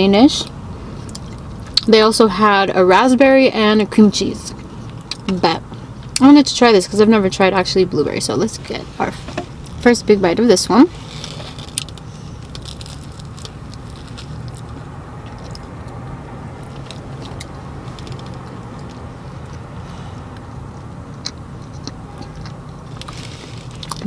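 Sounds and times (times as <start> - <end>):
steady low hum: 0.0 - 24.0
chewing pastry crackles: 11.0 - 16.0, 16.6 - 24.0.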